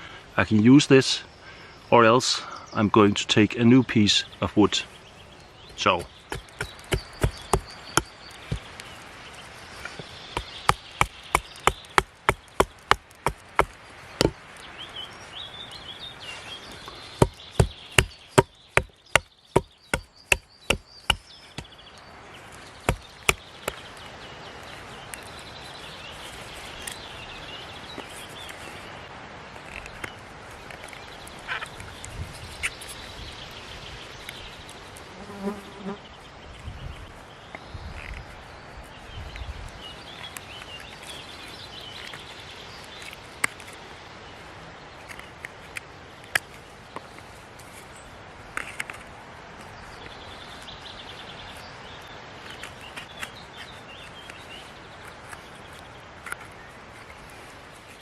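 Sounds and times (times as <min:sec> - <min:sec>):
blade chopping wood: 0:05.9 - 0:08.8, 0:09.9 - 0:14.4, 0:17.2 - 0:21.7, 0:22.8 - 0:23.8.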